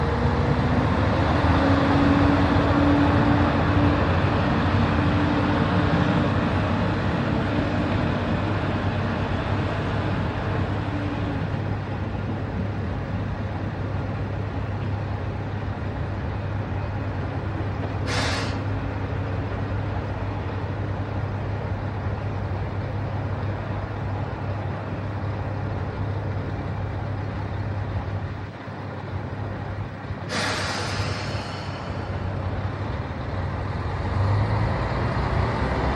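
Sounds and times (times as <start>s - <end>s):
diesel railcar engine idling: 0.0s - 34.3s
air brake hiss: 18.0s - 18.7s, 30.3s - 32.0s.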